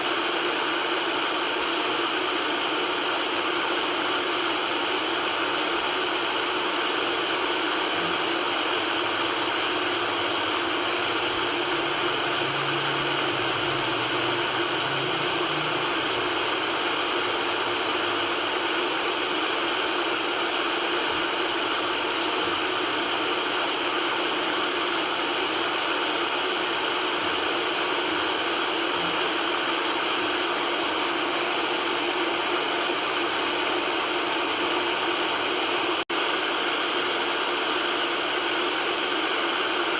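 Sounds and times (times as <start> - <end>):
white noise hiss: 9.8 - 18.4.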